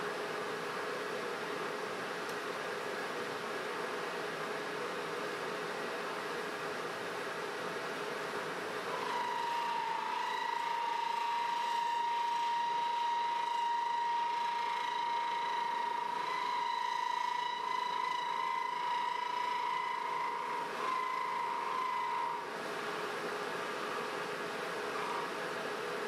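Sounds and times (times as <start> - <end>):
wood lathe whine: 7.7 - 26.0.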